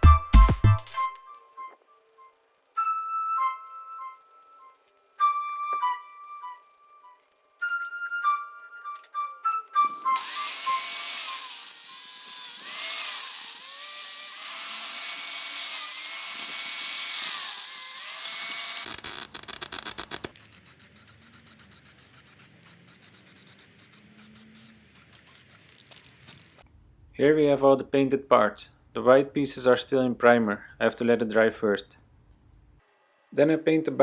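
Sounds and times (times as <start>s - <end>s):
power tool running: 10.2s - 26.0s
rattle of clicks: 25.1s - 26.6s.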